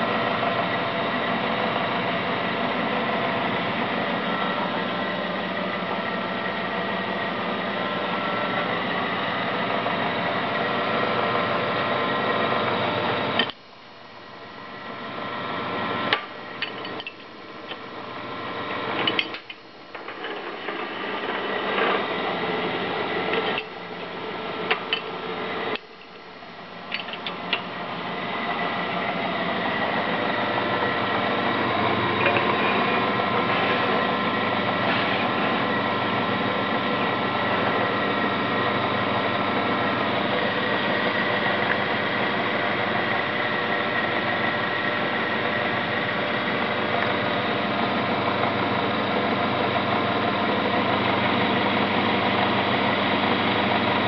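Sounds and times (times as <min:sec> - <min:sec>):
wood lathe motor running: 0:14.9 - 0:54.0.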